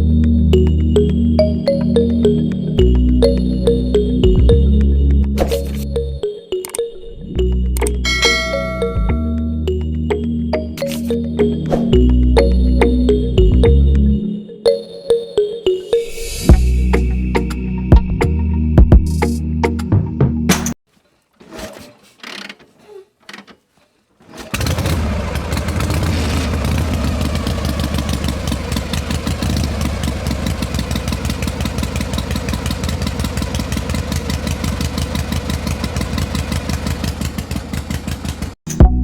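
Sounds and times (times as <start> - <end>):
small engine chugging: 24.2 - 38.6.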